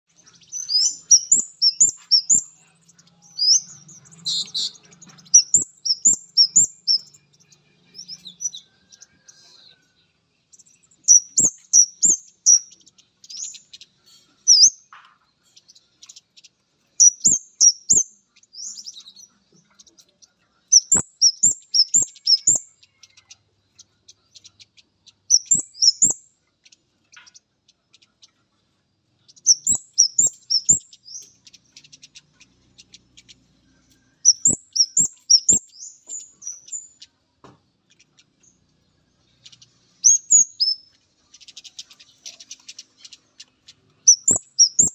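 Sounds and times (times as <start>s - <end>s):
bird chirping calls: 0.0s - 44.9s.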